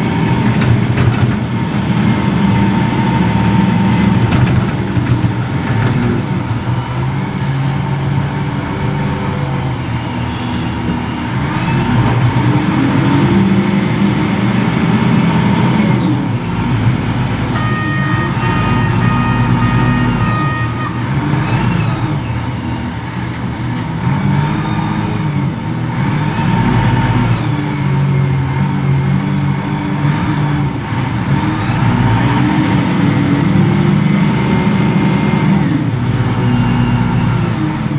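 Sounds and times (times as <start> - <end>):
heavy diesel engine revving: 0.0 - 37.9
steady high tone: 17.1 - 22.7.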